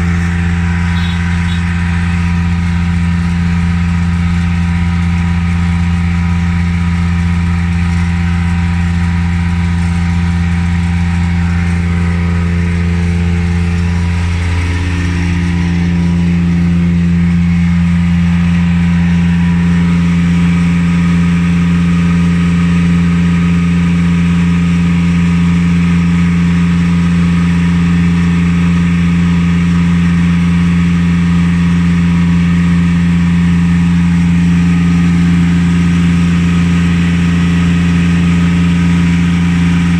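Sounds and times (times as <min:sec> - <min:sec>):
machine humming: 0:00.0 - 0:24.6.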